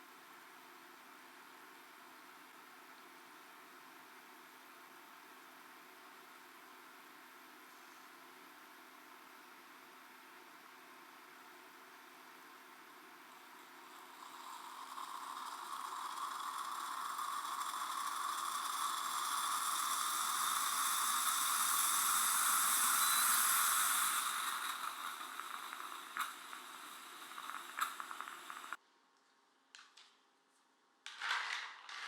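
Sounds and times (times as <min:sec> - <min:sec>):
moka pot hissing: 0:12.0 - 0:28.8.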